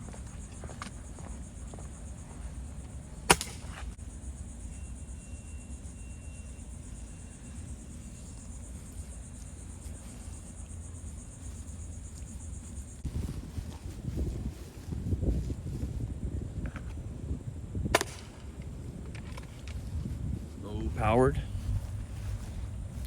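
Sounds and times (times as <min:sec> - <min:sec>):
air rifle shot: 0:03.3 - 0:03.8, 0:17.9 - 0:18.5.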